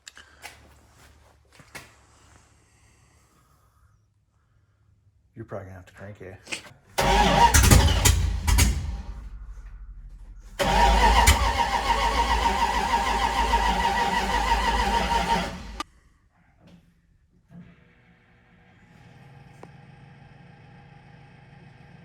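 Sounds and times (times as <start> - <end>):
engine cranking: 7.0 - 15.8
starter motor whine: 7.0 - 15.8.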